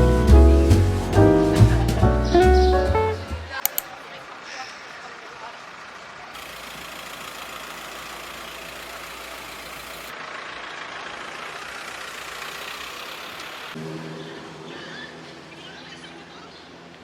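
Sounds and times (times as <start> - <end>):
vehicle engine running: 5.3 - 14.6.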